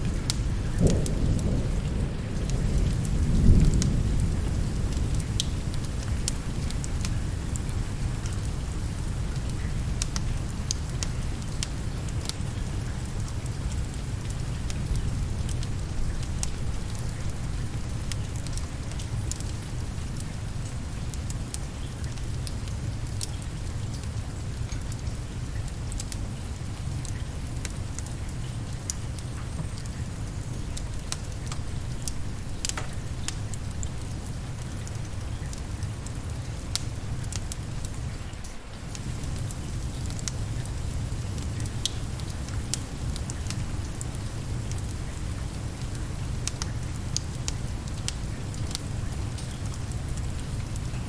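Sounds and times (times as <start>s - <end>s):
low rumble of thunder: 0.0s - 9.1s, 38.9s - 45.4s
steady rain: 0.0s - 51.0s
wood fire crackling: 0.0s - 51.0s.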